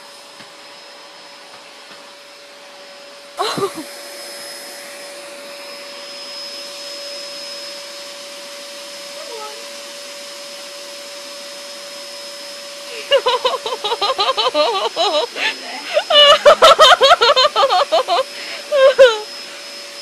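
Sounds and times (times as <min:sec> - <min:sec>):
vacuum cleaner running: 0:00.0 - 0:20.0
loud wavering voice: 0:12.9 - 0:19.3.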